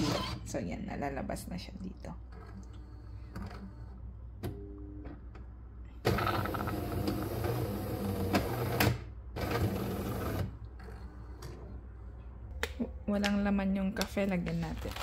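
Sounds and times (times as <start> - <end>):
coffee machine running: 6.1 - 10.6.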